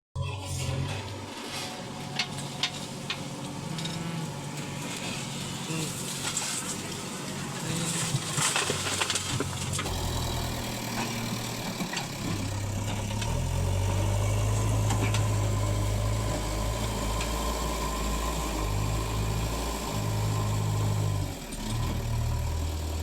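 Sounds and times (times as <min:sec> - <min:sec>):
diesel engines running: 0:00.2 - 0:23.0.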